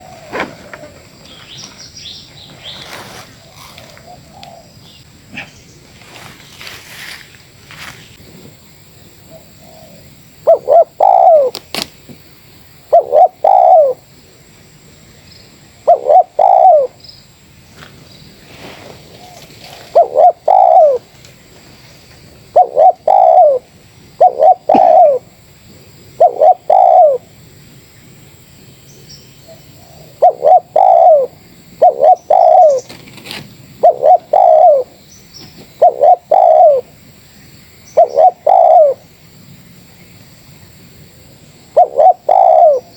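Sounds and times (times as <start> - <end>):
dove cooing: 9.2 - 11.6, 12.9 - 14.1, 15.8 - 17.0, 19.2 - 21.2, 22.4 - 25.4, 26.1 - 27.3, 29.5 - 33.1, 33.7 - 37.0, 37.9 - 39.1, 41.7 - 42.9.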